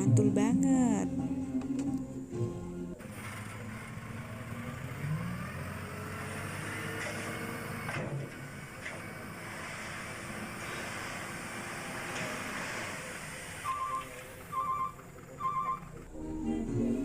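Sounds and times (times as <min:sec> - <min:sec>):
toy truck rolling whirr: 0:03.0 - 0:16.0.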